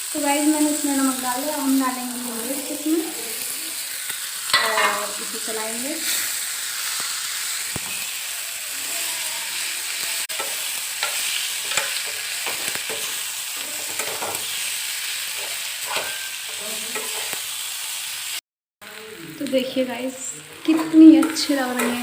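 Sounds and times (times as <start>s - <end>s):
vegetables sizzling in hot oil: 0.0s - 22.0s
spoon scraping a pan: 4.1s - 5.4s, 8.8s - 17.6s.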